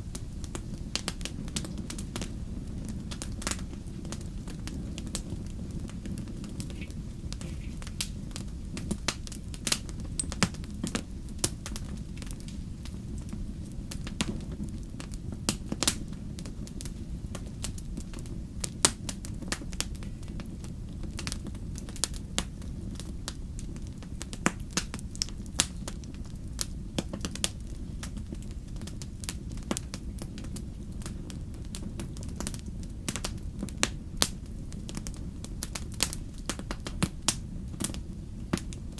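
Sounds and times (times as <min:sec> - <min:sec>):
fire snaps and pops: 0:00.0 - 0:38.9
wood fire crackling: 0:00.0 - 0:38.9.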